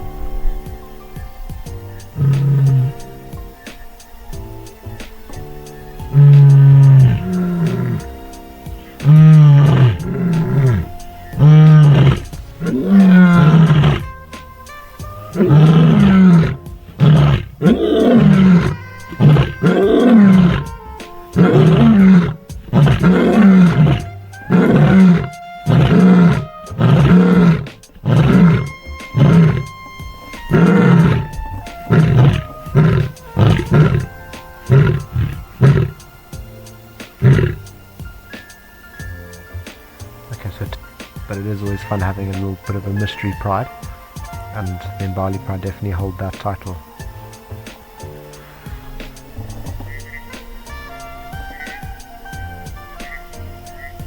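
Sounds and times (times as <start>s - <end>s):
lioness roaring and grunting: 1.8s - 3.6s, 4.2s - 14.3s, 15.1s - 37.8s.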